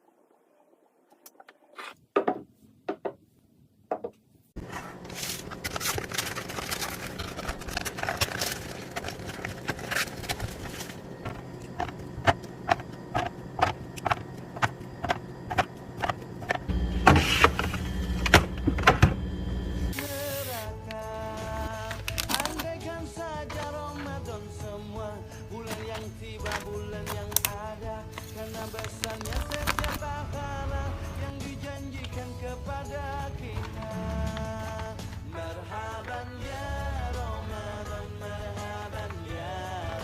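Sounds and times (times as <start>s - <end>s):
packages being set down: 4.6s - 19.3s, 19.9s - 24.2s, 25.5s - 30.2s
steady hum: 4.6s - 20.8s.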